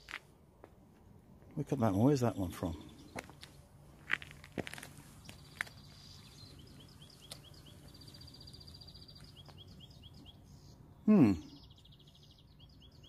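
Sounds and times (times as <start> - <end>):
bird chirping: 1.8 - 3.6, 5.0 - 13.0.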